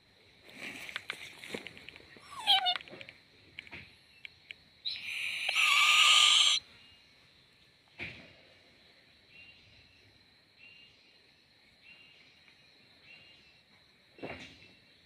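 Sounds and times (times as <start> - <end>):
owl harsh screech: 2.2 - 2.8, 4.9 - 6.6
owl call gliding downward: 4.9 - 6.6.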